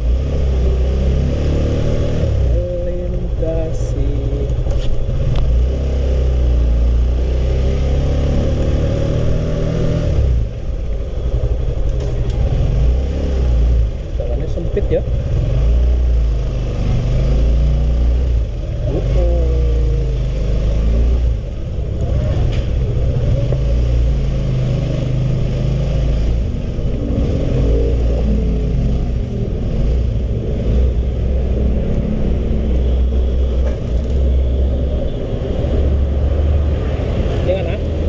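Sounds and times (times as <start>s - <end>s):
motorcycle engine rumbling: 10.2s - 38.0s.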